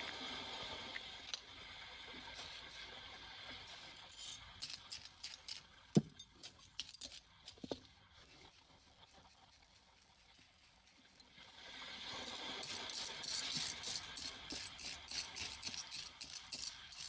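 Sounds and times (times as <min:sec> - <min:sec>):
small hard objects clinking: 0:03.7 - 0:17.0.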